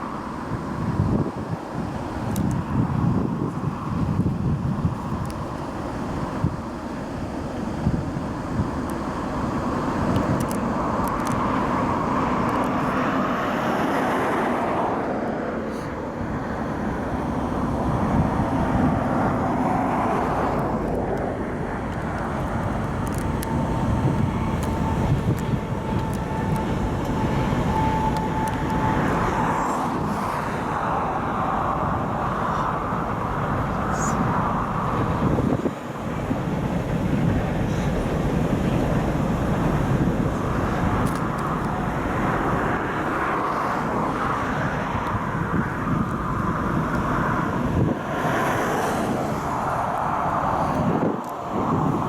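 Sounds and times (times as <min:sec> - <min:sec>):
freight train wheels rumbling: 0:00.0 - 0:52.0
thin wheel squeal whine: 0:23.3 - 0:30.4.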